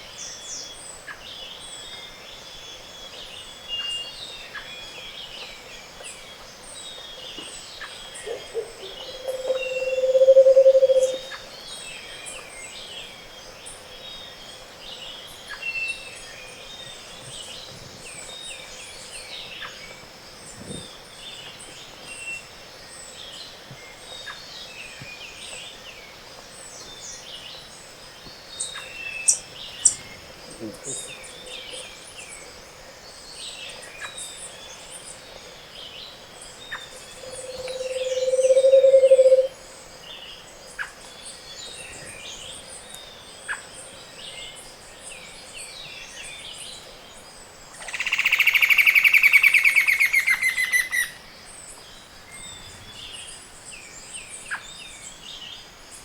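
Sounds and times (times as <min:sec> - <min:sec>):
bird low pulsed trill: 0:08.2 - 0:11.4, 0:36.7 - 0:39.5
small birds chirping and trilling: 0:26.6 - 0:56.0.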